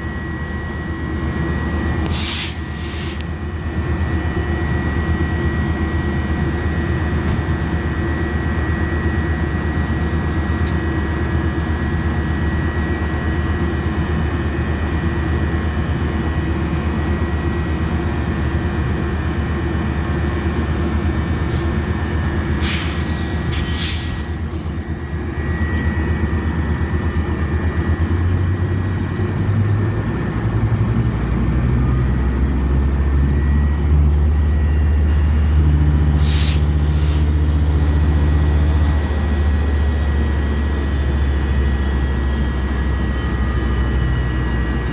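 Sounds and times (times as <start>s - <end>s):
low diesel engine tone: 0.0s - 44.9s
train rumbling: 0.0s - 44.9s
hissing air bursts: 2.1s - 3.2s.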